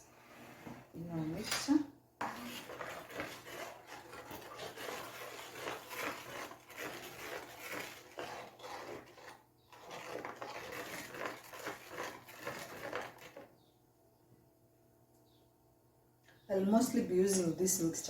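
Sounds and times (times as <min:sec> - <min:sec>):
spoon scraping and stirring in container: 0:00.0 - 0:13.6.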